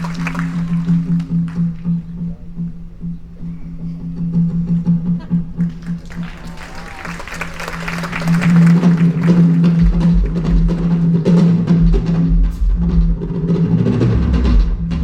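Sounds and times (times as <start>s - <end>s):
rapid rhythmic tapping and drum hits: 0.0s - 3.4s, 4.1s - 15.0s
heavy bass beat: 8.3s - 15.0s.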